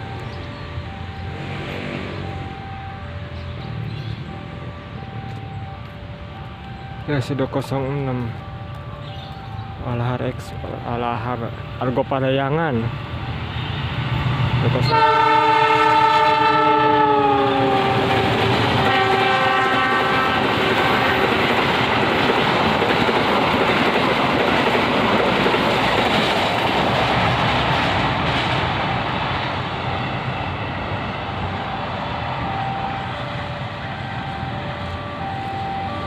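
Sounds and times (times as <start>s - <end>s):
train carriages rushing past: 12.8s - 36.0s
train horn: 14.8s - 21.4s.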